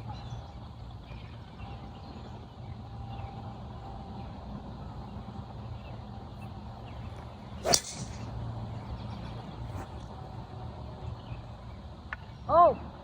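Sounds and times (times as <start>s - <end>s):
golf driver striking ball: 7.6s - 8.3s.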